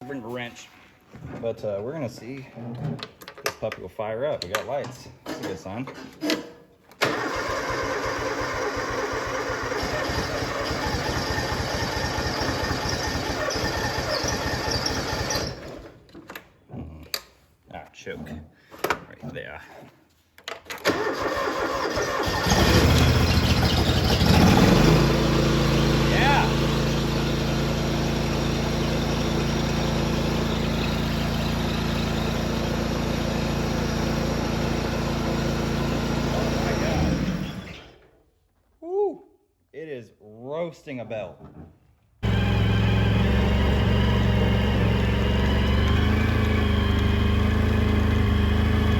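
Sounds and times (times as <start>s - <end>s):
engine chugging: 20.9s - 37.7s, 42.2s - 48.9s.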